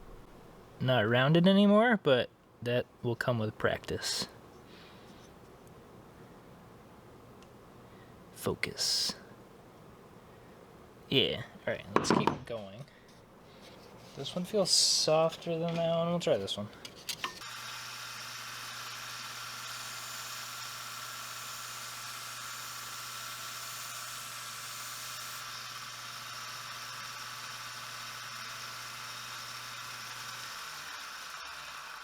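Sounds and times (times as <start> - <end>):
belt sander motor humming: 17.3 - 32.0.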